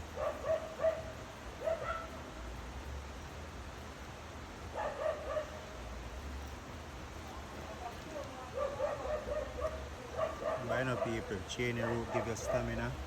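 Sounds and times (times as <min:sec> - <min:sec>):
dog barking and yipping: 0:00.2 - 0:02.1, 0:04.7 - 0:05.6, 0:08.6 - 0:12.8.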